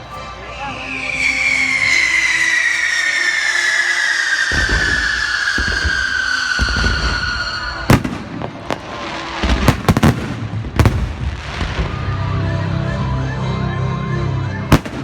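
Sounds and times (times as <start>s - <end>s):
firework whistle falling: 0.2s - 8.8s, 11.5s - 13.6s
firework bangs: 0.9s - 12.3s, 14.7s - 15.0s.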